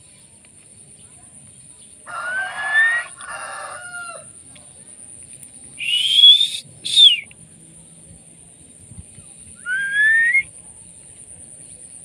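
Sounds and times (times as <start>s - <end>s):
rising two-part bird call: 5.8s - 7.2s, 9.7s - 10.4s
bird whistle: 5.8s - 7.3s, 9.6s - 10.4s.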